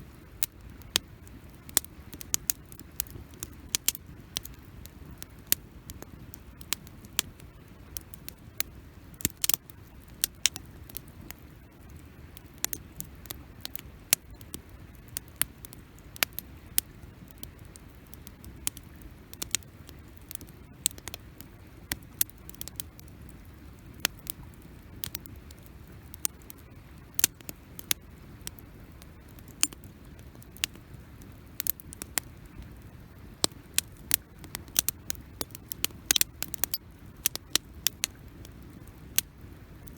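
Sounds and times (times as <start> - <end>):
campfire crackling and popping: 0.1 - 39.9.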